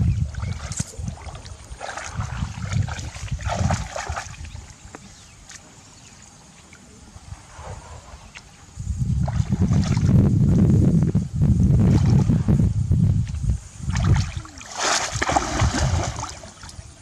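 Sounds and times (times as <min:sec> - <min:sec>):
water sloshing and trickling: 0:00.0 - 0:07.0, 0:13.8 - 0:17.0.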